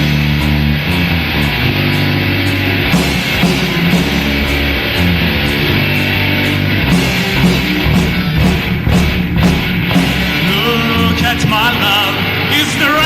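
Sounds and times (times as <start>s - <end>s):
rock band playing: 0.0s - 13.0s
wavering high melodic line: 1.8s - 8.8s.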